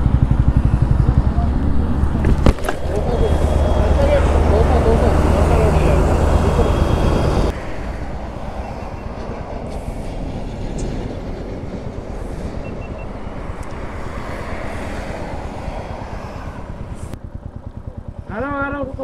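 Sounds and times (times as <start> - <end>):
motorcycle engine thumping: 2.0 - 3.5.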